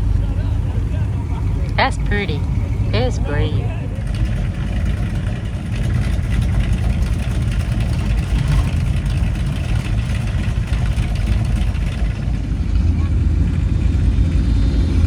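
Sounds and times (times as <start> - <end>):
car engines running: 0.0 - 15.0.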